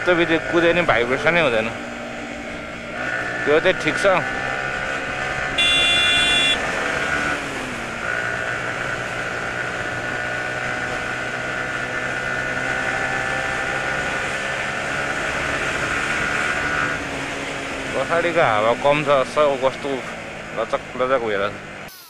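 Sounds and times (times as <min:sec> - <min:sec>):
motorcycle engine running steadily: 0:00.0 - 0:21.8
road and wind noise: 0:00.0 - 0:21.9
horn honking: 0:05.4 - 0:06.9.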